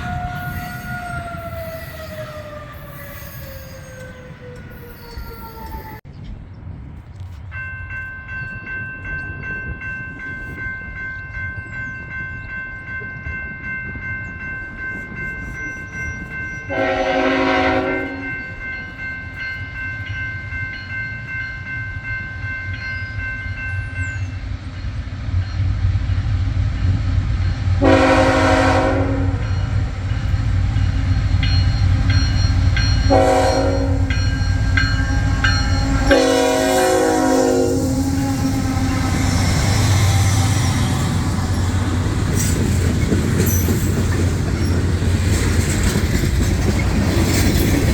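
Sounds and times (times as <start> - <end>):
train rumbling: 0.0 - 47.9
locomotive horn blasts: 16.7 - 18.5, 27.8 - 29.7, 32.8 - 40.7.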